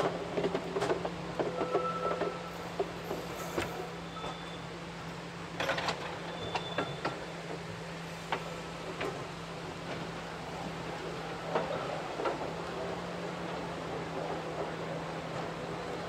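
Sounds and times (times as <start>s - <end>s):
train low drone: 0.0s - 16.0s.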